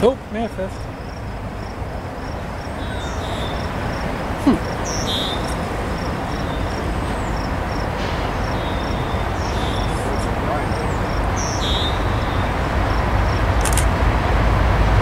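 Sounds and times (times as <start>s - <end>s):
birds calling: 0.0s - 13.6s
insects chirping: 0.0s - 14.0s
distant train rumble: 0.0s - 15.0s.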